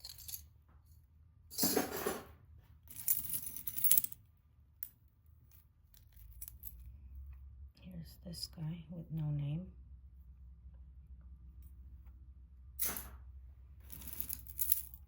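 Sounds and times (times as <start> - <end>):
metal jewelry clinking: 0.0 - 0.5, 2.8 - 7.0, 12.8 - 13.2, 13.8 - 15.0.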